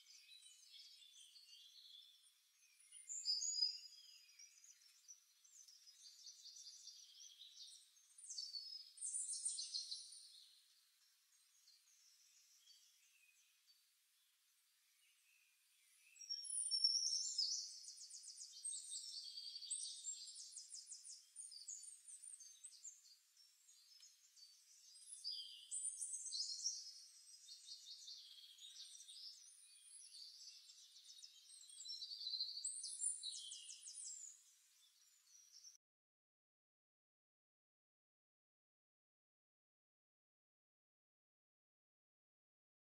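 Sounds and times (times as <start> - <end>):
songbird singing trills: 0.0 - 10.6, 15.8 - 35.8.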